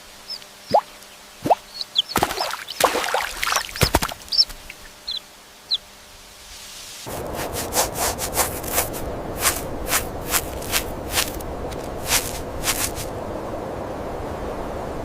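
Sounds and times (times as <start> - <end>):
steady hiss: 3.6 - 13.2
rasping scraping strokes: 6.6 - 13.1.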